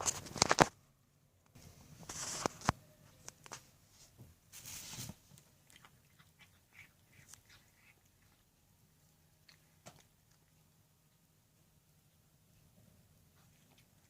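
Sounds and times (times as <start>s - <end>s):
cat chewing food: 5.3s - 11.5s.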